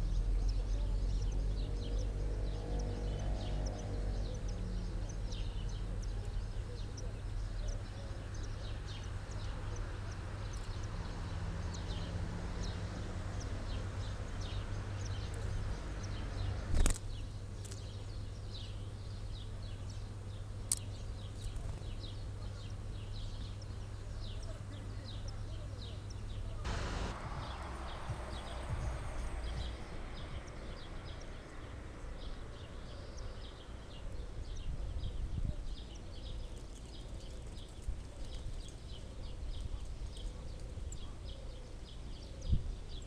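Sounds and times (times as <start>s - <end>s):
small birds chirping: 0.0s - 43.0s
steady low hum: 26.1s - 31.5s.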